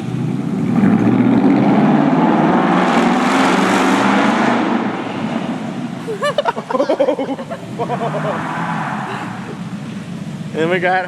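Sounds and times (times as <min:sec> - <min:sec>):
loud truck exhaust driving past: 0:06.9 - 0:10.6.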